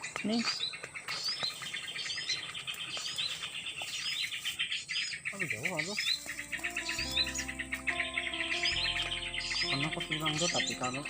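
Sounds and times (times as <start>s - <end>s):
birds chirping: 0.0s - 11.0s
steady held tones: 6.2s - 11.0s.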